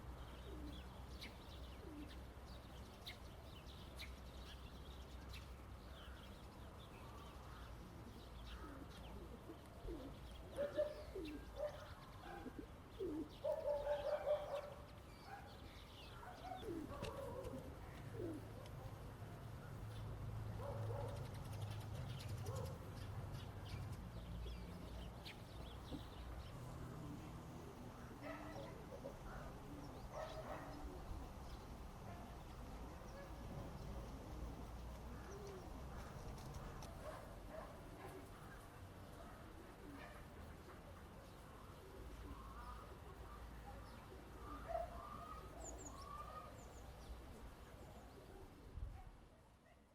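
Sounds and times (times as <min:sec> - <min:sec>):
birds calling: 0:00.0 - 0:19.0, 0:19.6 - 0:34.1.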